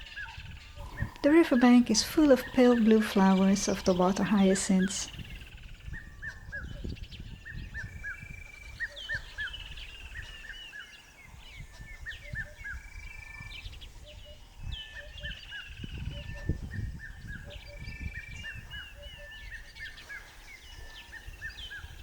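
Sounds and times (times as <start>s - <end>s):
birds whistling: 0.0s - 22.0s.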